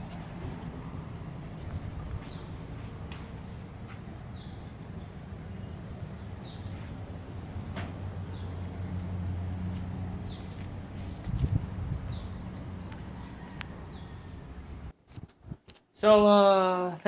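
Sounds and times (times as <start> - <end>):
bird chirping: 4.2 - 6.9, 12.0 - 14.2.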